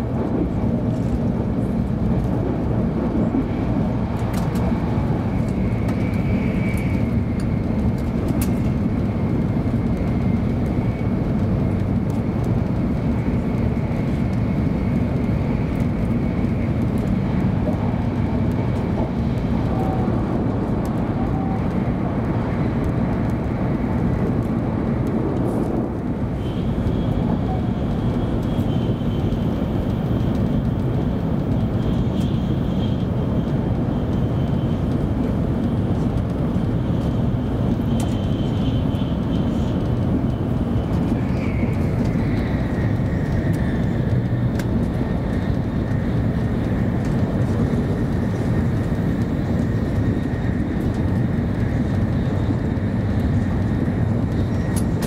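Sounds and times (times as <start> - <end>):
train cabin running rumble: 0.0 - 55.0.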